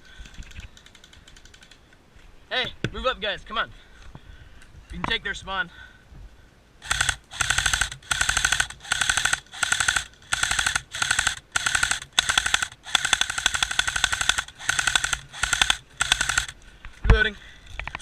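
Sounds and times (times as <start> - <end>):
airsoft rifle firing bursts: 6.8 - 16.6.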